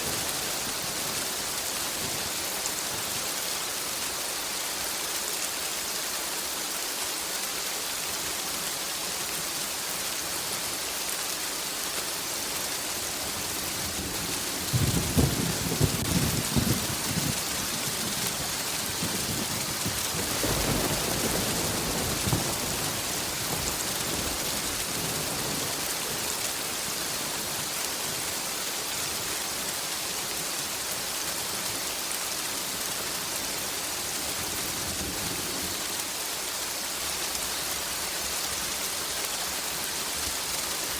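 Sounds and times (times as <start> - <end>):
heavy rain hissing: 0.0 - 40.9
crackling thunderclap: 13.7 - 27.0
thunder rumbling: 13.9 - 26.4.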